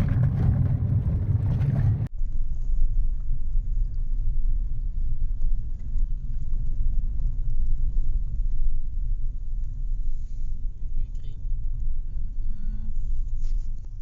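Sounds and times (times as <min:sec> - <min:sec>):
car driving on gravel road: 0:00.0 - 0:10.8.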